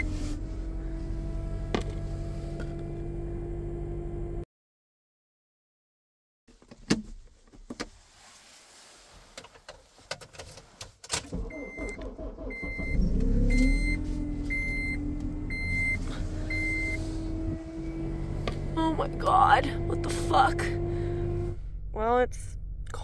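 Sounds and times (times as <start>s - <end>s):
car engine cranking and idling: 0.0s - 4.4s, 10.6s - 23.0s.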